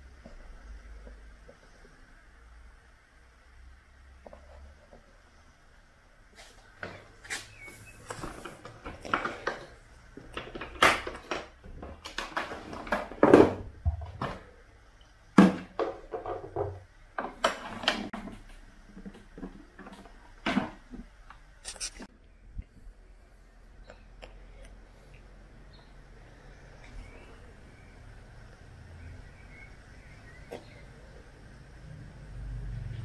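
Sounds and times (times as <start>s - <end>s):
objects knocking and clattering: 8.1s - 14.6s, 15.4s - 21.2s.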